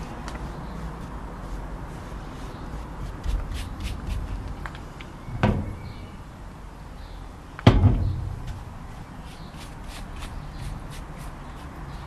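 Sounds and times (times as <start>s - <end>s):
low rumbling handling noise: 4.0s - 6.5s, 7.5s - 9.2s
dull thumps: 5.3s - 6.1s, 7.6s - 8.8s.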